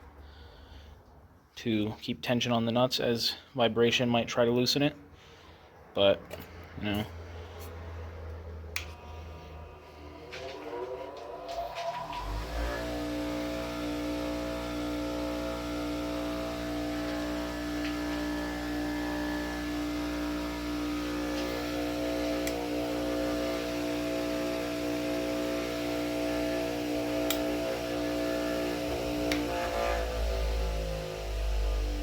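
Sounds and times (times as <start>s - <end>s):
bench grinder motor whining: 7.6s - 32.0s.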